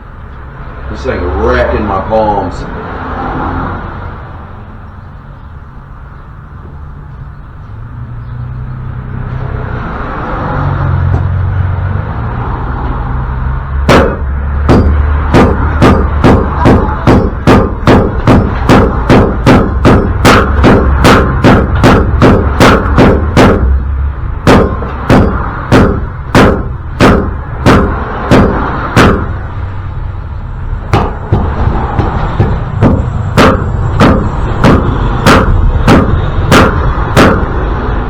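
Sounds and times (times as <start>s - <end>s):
steady low hum: 13.3s - 38.0s
hammer blows on steel: 13.9s - 23.8s, 30.9s - 37.6s.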